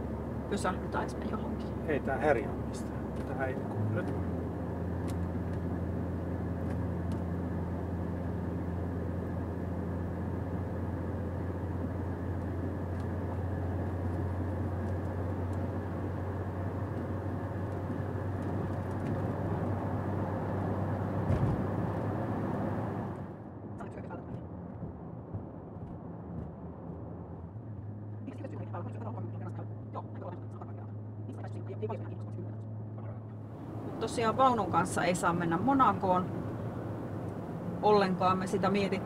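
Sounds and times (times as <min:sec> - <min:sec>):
diesel engine droning: 0:00.0 - 0:39.0
road and tyre noise: 0:00.0 - 0:39.0
man talking: 0:01.8 - 0:04.2.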